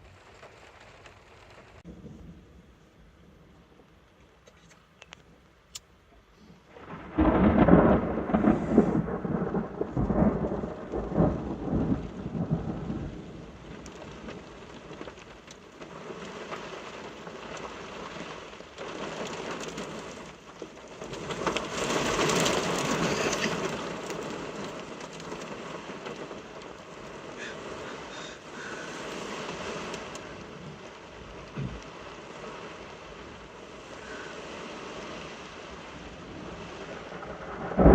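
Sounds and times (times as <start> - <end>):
thunder rumbling: 0.0 - 4.2, 6.6 - 37.9
steady rain: 0.0 - 37.9.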